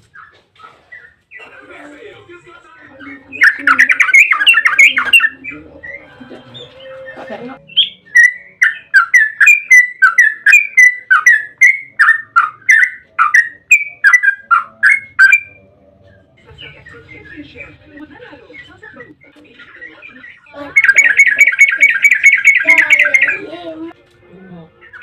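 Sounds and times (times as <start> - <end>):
bulbul chattering and calling: 2.8 - 6.0, 7.7 - 17.7, 18.5 - 23.5.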